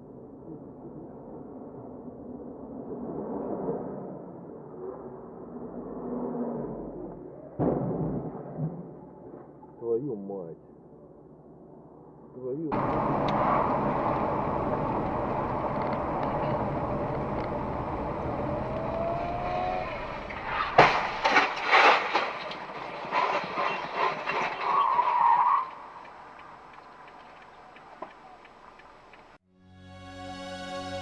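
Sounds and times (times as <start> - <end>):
car road noise: 12.7 - 29.9
car crash impact: 15.2 - 24.8
bangs and crunches of collision: 20.0 - 24.8.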